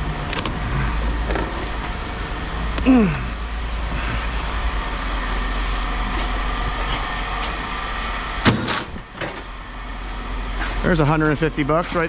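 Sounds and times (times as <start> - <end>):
low mechanical rumble: 0.0 - 12.0.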